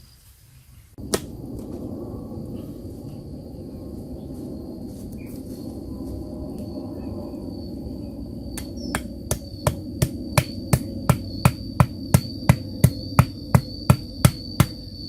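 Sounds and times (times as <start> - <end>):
steady hum: 0.8 - 15.0
evenly spaced knocking: 9.0 - 14.8.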